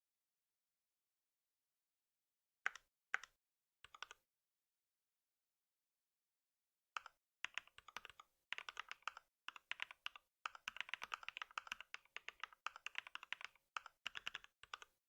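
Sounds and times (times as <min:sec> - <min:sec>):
computer keyboard typing: 0:03.9 - 0:04.2, 0:07.0 - 0:15.0.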